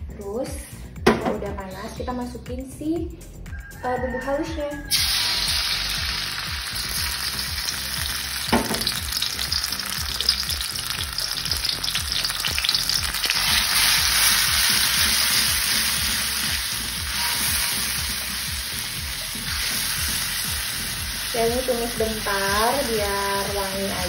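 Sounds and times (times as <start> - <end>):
paste sizzling in hot oil: 4.9 - 24.0.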